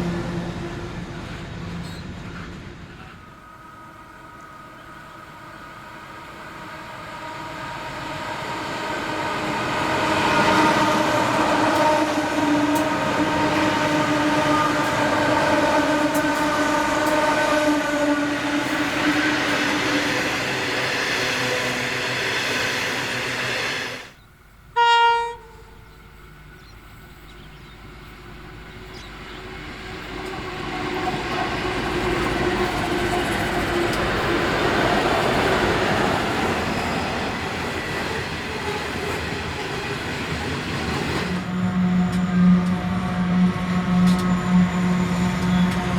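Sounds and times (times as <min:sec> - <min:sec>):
diesel locomotives running past: 0:00.0 - 0:45.9
train horn toot: 0:03.1 - 0:20.6, 0:24.7 - 0:26.5, 0:40.9 - 0:45.9.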